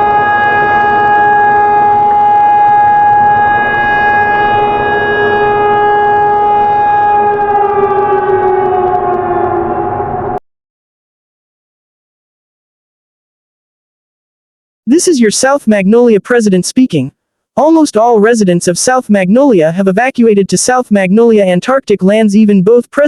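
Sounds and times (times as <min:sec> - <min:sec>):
civil defense siren: 0:00.0 - 0:10.4.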